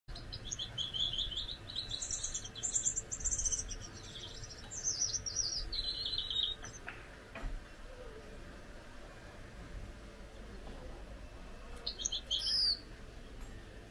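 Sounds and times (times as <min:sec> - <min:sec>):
finch singing: 0:00.1 - 0:07.0, 0:11.7 - 0:13.0.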